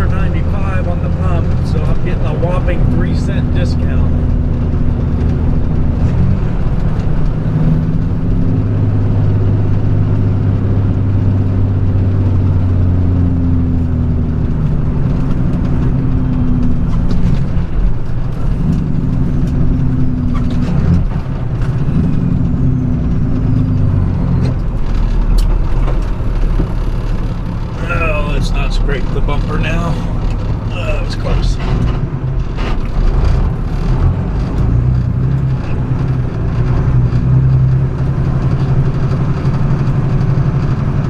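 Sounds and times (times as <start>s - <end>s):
truck diesel engine humming: 0.0s - 41.0s
sharp clicks and knocks: 13.8s - 41.0s.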